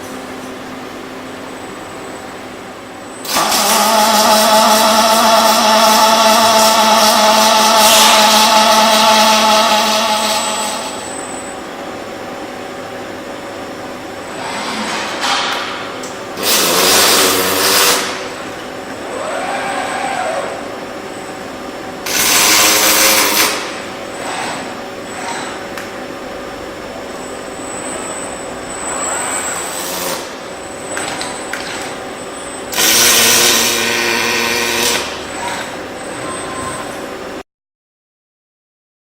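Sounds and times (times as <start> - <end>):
machine drone: 3.1 - 37.4
loud noisy bursts: 3.2 - 11.1, 16.4 - 20.9, 22.0 - 24.3, 32.7 - 36.9.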